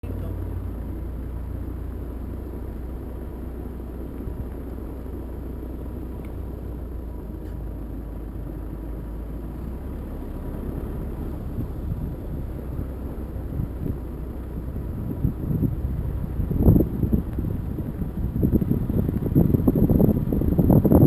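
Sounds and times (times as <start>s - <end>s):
wind buffeting microphone: 9.9s - 21.0s.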